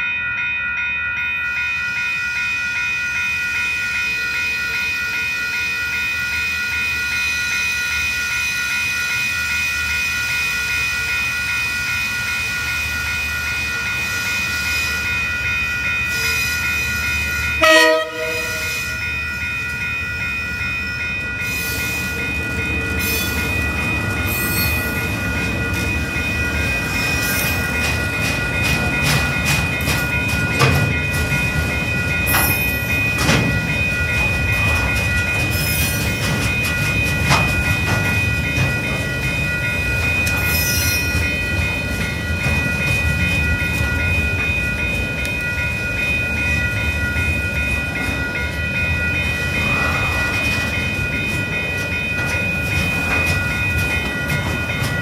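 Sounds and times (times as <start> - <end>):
level crossing alarm ringing: 0.0 - 55.0
train passing: 1.4 - 55.0
locomotive horn blast: 17.6 - 18.8
wheels clicking over rail joints: 17.6 - 55.0.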